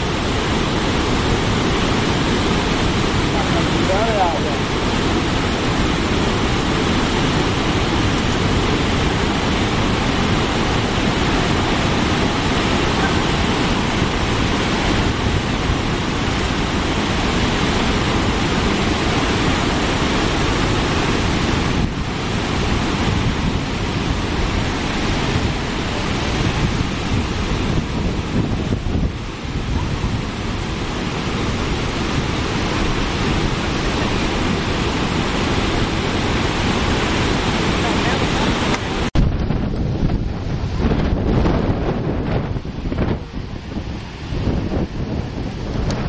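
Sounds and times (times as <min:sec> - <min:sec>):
heavy falling water rushing: 0:00.0 - 0:46.0.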